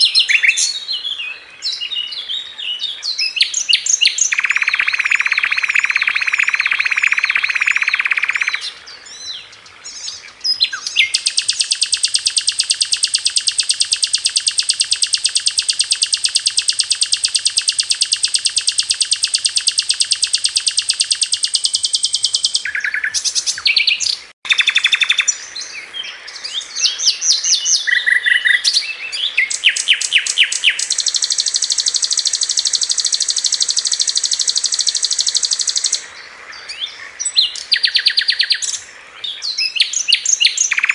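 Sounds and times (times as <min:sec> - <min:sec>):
bird singing rattling trill: 0:00.0 - 0:25.8, 0:26.5 - 0:36.0, 0:36.7 - 0:38.8, 0:39.4 - 0:40.9
bird chirps: 0:00.0 - 0:40.9.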